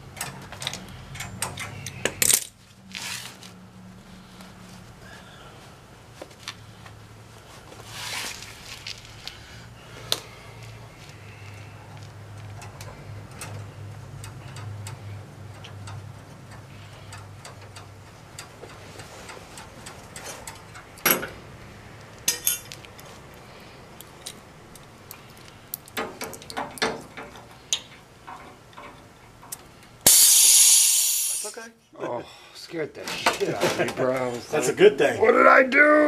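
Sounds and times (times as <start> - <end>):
light clicks and taps on tubing: 10.1 - 20.9
loud gas hiss: 30.0 - 31.6.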